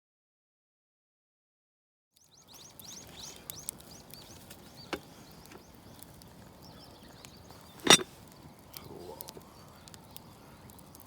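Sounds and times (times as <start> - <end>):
small bird chirping: 2.2 - 11.0.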